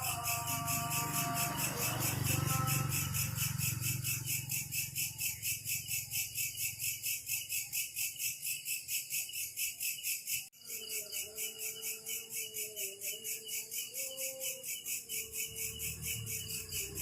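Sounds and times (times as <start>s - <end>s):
insect chirping: 0.0s - 17.0s.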